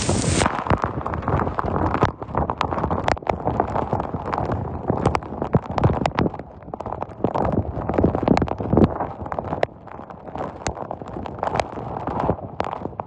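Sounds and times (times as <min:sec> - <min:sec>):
rain or hail tapping hard surface: 0:00.0 - 0:00.8
storm noise: 0:00.0 - 0:03.1.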